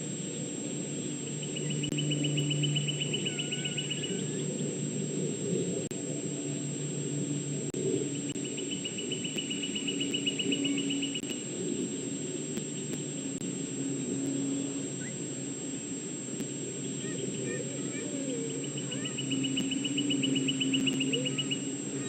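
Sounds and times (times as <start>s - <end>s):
faint hum: 0.0s - 22.0s
rapid high trill of ticks: 0.1s - 22.0s.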